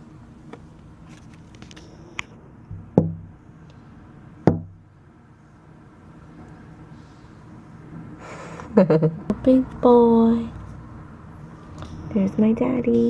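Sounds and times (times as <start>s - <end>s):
heavy knocks with low ring: 3.0s - 3.3s.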